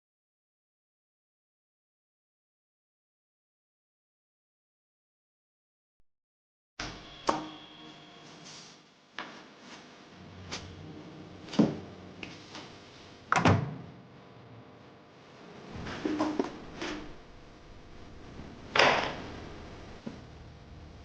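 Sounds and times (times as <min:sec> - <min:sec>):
knocks and thumps: 0:15.7 - 0:17.2.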